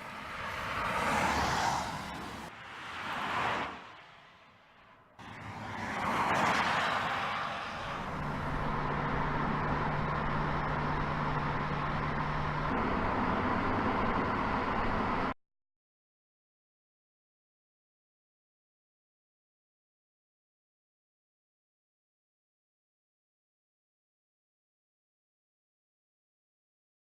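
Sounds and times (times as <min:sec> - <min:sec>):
cars passing at speed: 0:00.0 - 0:15.4
low hum: 0:05.2 - 0:15.4
steady engine drone: 0:05.2 - 0:15.4.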